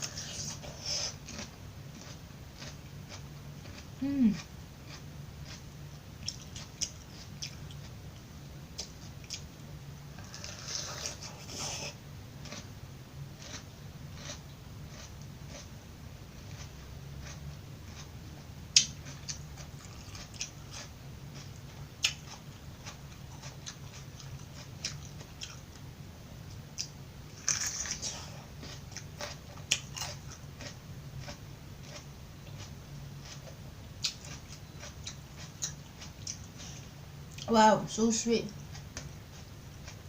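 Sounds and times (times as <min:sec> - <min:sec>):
crunching raw vegetables: 0:00.0 - 0:08.0, 0:13.4 - 0:15.7, 0:16.4 - 0:25.7, 0:26.8 - 0:37.5
steady low hum: 0:00.0 - 0:40.0.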